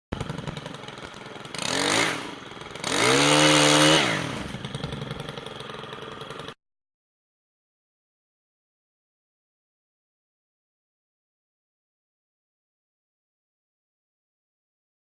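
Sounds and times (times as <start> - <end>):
chainsaw engine idling and revving: 0.1 - 6.6.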